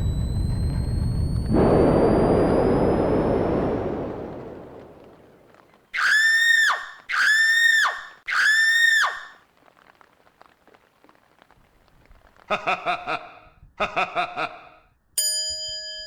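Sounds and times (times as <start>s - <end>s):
rushing noise: 0.0s - 5.6s
loud high-pitched calls: 6.0s - 9.4s.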